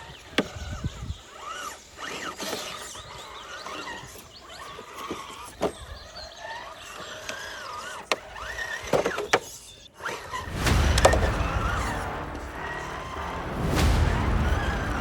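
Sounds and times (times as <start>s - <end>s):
electric motor and gears whining: 0.0s - 15.0s
sharp knocks: 10.5s - 15.0s.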